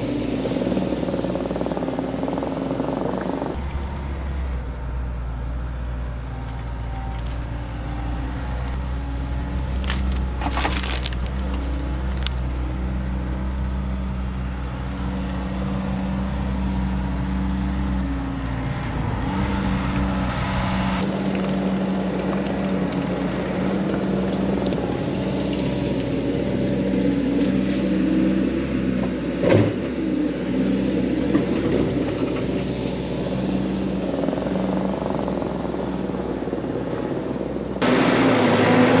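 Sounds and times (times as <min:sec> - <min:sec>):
skid steer diesel engine under load: 0:00.0 - 0:39.0
wood branches cracking and splintering: 0:06.6 - 0:07.6, 0:09.2 - 0:13.8.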